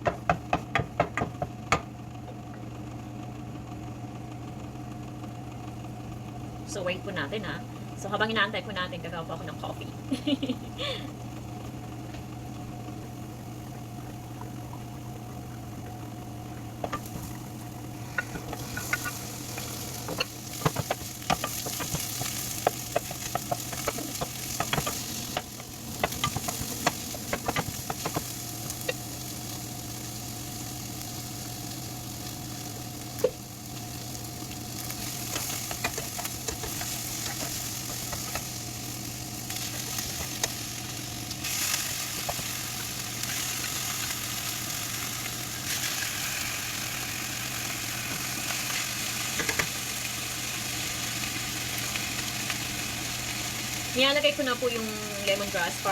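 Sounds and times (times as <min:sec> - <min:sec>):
low hum: 0:05.2 - 0:55.9
food sizzling in a pan: 0:13.0 - 0:55.9.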